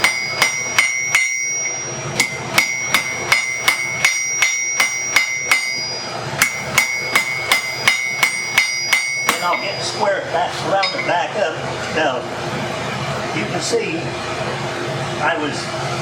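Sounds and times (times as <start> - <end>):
hammer striking steel on anvil: 0.0 - 11.3.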